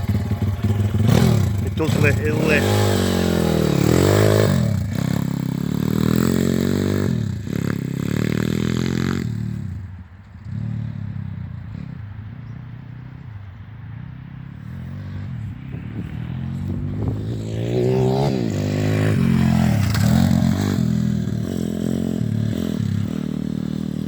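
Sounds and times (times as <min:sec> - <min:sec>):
motorbike engine revving: 0:00.0 - 0:13.1, 0:14.8 - 0:24.0.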